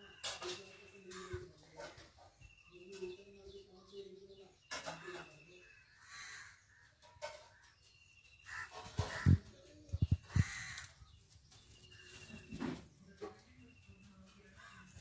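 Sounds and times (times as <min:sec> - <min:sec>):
birds calling: 0:00.0 - 0:15.0
crows cawing: 0:06.0 - 0:06.7, 0:08.5 - 0:09.4, 0:10.4 - 0:11.0.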